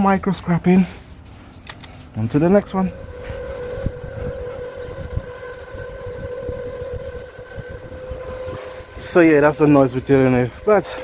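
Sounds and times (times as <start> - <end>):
steady droning hum: 2.0 - 11.0
low rumble: 2.2 - 11.0.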